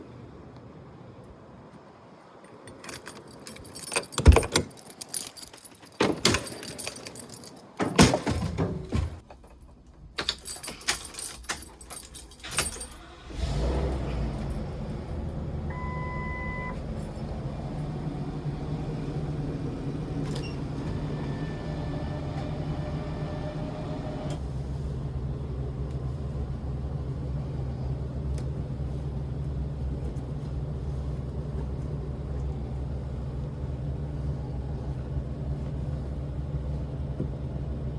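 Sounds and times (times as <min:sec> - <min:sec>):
keys jangling: 0:02.4 - 0:08.5, 0:09.4 - 0:15.4
engine starting and idling: 0:12.4 - 0:29.0.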